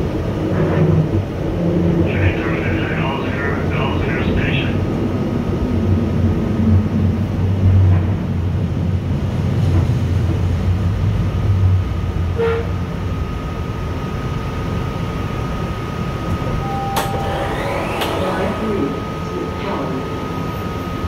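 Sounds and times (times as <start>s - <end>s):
steady high whine: 0.0s - 7.6s, 11.4s - 21.0s
train car running rumble: 0.0s - 21.0s
short tone: 16.5s - 20.4s.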